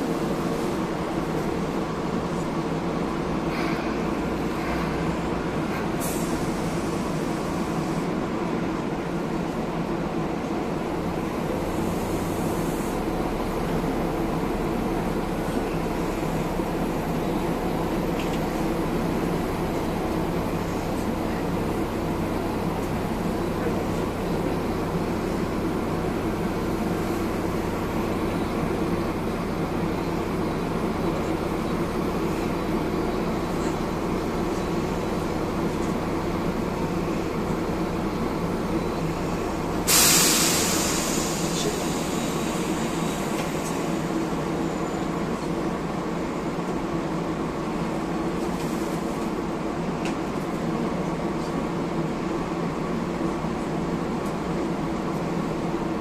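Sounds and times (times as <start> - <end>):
tram interior hum: 0.0 - 56.0
loud hiss: 39.8 - 43.9.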